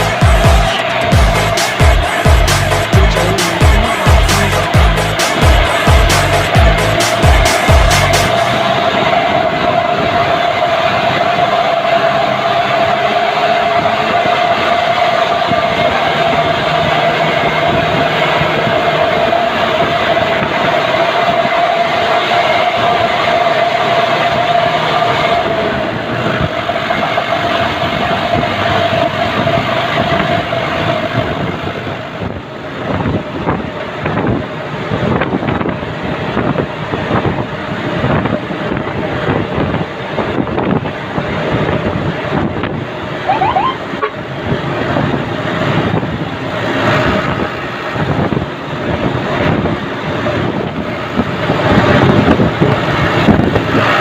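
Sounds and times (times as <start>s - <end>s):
steady whine: 0.0s - 20.2s
truck engine running: 0.0s - 22.0s
road and wind noise: 0.0s - 54.0s.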